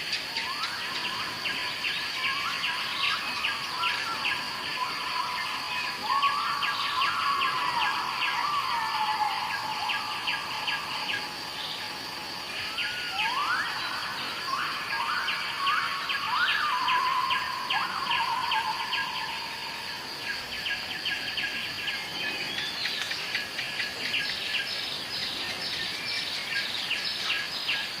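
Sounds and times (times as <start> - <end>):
insects buzzing: 0.0 - 28.0
birds whistling: 12.7 - 19.5.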